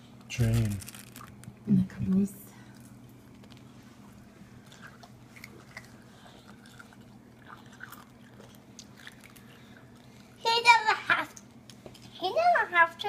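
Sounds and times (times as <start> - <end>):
chewing and crunching: 2.8 - 10.4.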